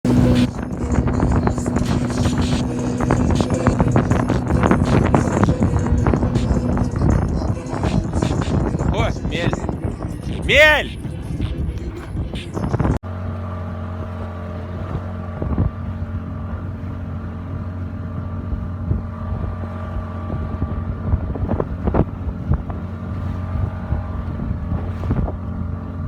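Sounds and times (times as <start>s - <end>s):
boat engine droning: 0.0s - 26.0s
wind buffeting microphone: 0.1s - 13.0s, 14.0s - 26.0s.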